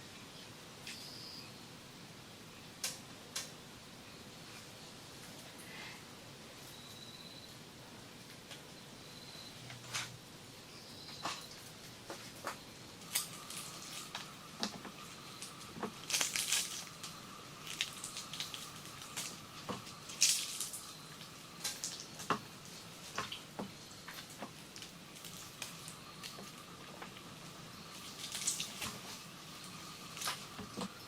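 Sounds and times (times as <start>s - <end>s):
faint steady high tone: 6.6s - 7.6s, 8.7s - 9.8s
water dripping: 15.4s - 27.3s, 28.0s - 31.0s.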